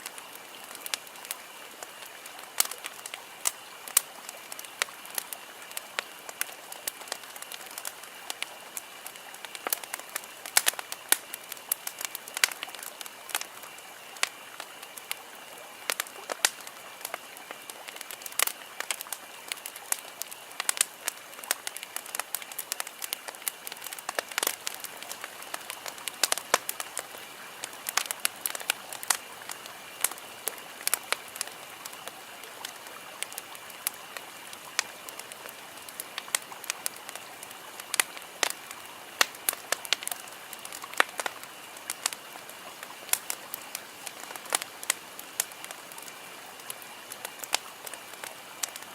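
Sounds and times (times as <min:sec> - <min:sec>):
campfire crackling and popping: 0:00.0 - 0:48.9.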